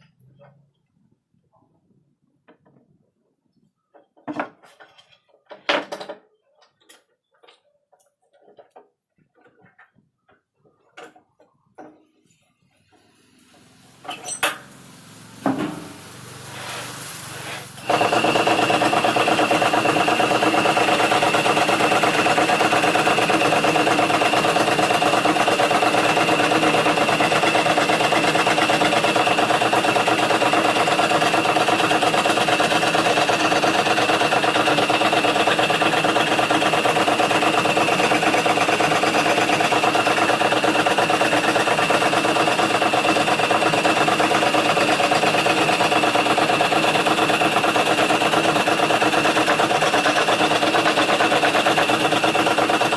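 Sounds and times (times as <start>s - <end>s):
scroll saw running: 12.9s - 52.9s.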